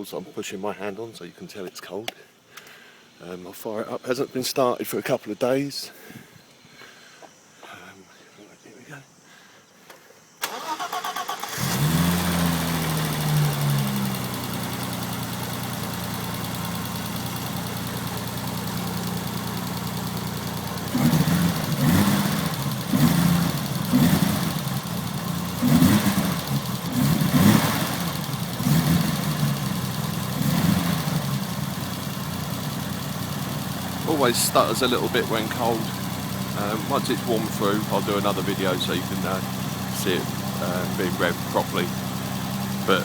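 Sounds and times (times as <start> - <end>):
car engine starting and idling: 10.4 - 43.0.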